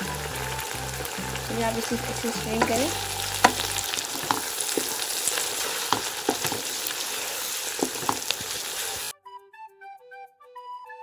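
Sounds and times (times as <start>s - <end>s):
food sizzling in a wok: 0.0s - 9.1s
spatula scraping a pan: 2.5s - 9.1s.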